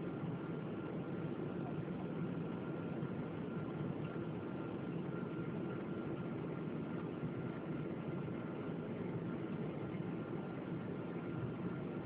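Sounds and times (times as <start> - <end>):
airplane cabin engine drone: 0.0 - 12.0
faint thin whine: 0.0 - 12.0.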